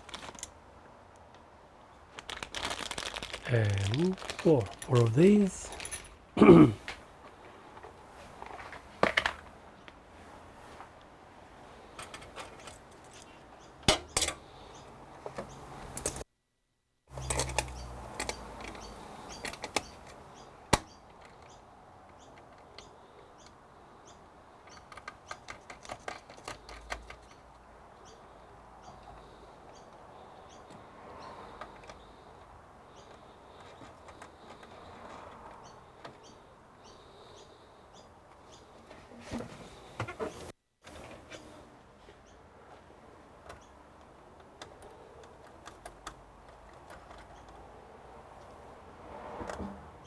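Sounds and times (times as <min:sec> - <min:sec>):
small metal parts clicking: 0:02.3 - 0:06.1
metal parts rattling: 0:02.4 - 0:06.2.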